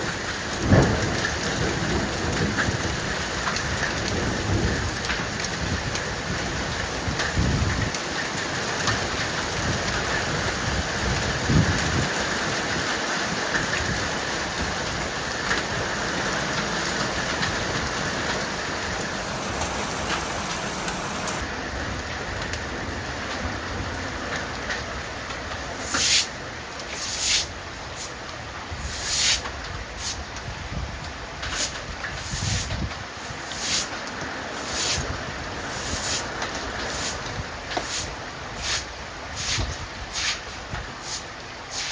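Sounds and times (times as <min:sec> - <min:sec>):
rain and hail pelting: 0:00.0 - 0:41.9
loud hail strikes: 0:00.1 - 0:04.8.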